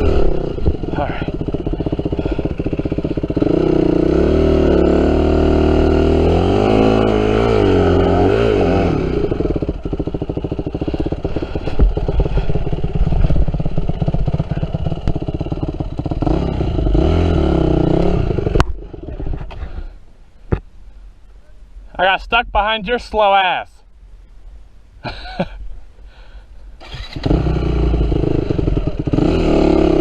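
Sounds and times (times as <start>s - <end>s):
dirt bike engine revving: 0.0s - 19.6s, 26.8s - 30.0s.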